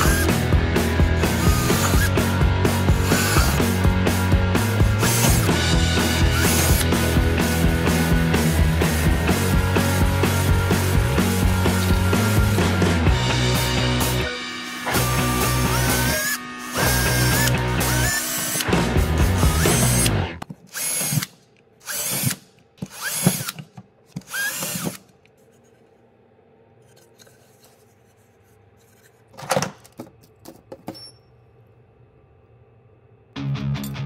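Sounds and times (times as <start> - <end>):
cordless drill whining: 0.0 - 3.8, 4.8 - 8.0, 14.0 - 25.1.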